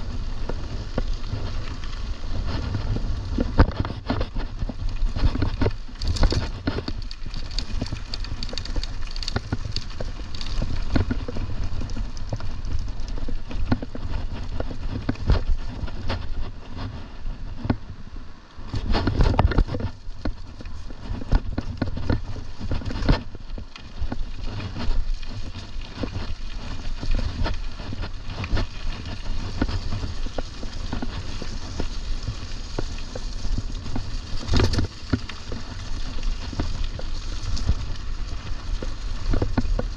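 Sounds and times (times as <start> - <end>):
bike tyre noise: 0.0 - 39.9
wind rumbling on microphone: 0.0 - 39.9.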